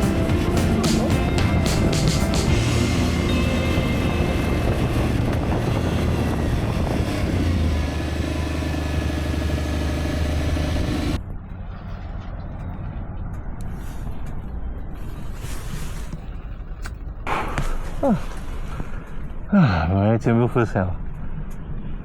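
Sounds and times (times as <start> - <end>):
wind rushing over microphone: 0.0 - 9.2
motorcycle engine cruising: 0.0 - 15.8.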